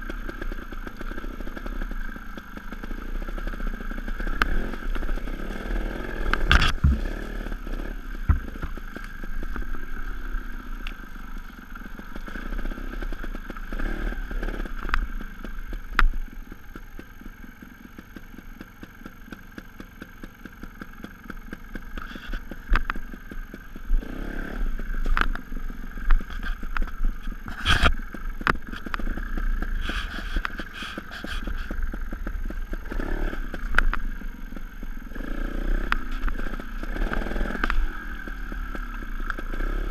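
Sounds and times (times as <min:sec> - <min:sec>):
motorcycle engine revving: 0:00.0 - 0:39.9
sharp knocks and clatters: 0:06.3 - 0:07.2, 0:08.2 - 0:09.1.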